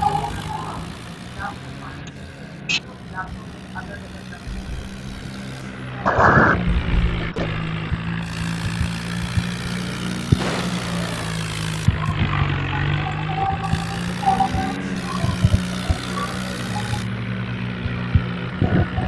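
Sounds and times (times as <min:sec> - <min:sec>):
tractor engine humming: 0:00.0 - 0:19.0
short burst of noise: 0:04.4 - 0:07.6.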